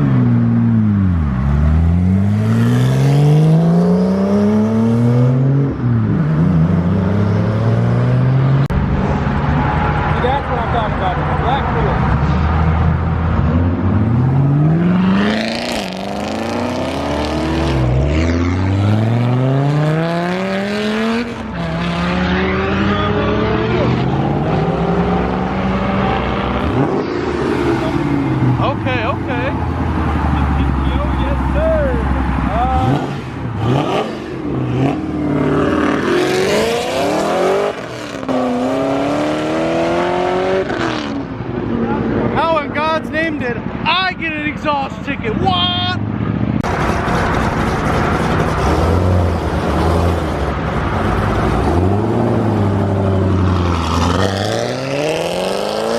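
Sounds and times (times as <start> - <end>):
car engine accelerating: 0.0 - 42.4.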